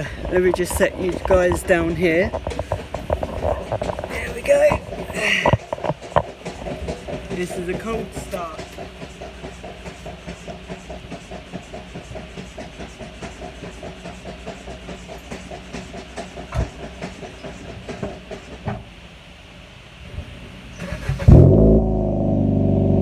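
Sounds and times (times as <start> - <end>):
motor running with rhythmic pulse: 0.0 - 20.0.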